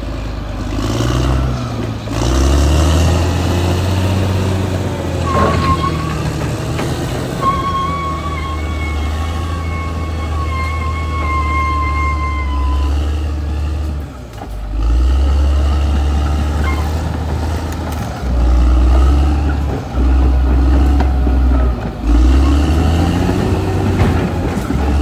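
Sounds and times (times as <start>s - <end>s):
bulldozer diesel engine rumbling: 0.0s - 25.0s.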